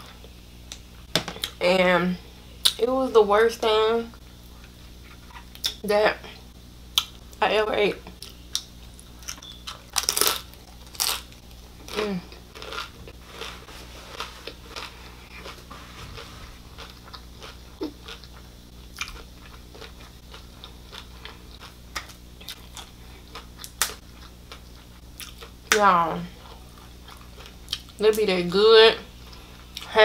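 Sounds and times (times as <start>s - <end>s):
crunchy food crunches: 8.2s - 25.8s.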